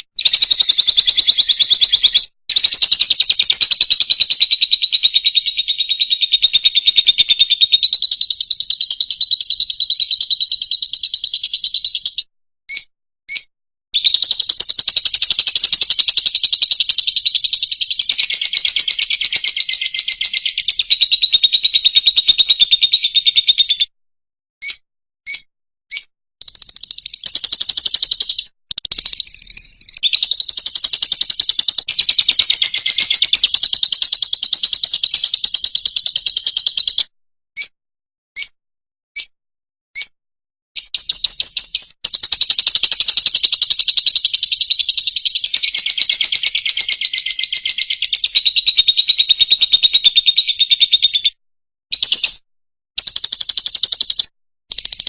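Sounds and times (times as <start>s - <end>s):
lovebird twittering chatter: 0.2s - 13.4s, 14.0s - 23.8s, 24.6s - 37.0s, 40.8s - 51.2s
lovebird short chirps: 40.8s - 42.2s.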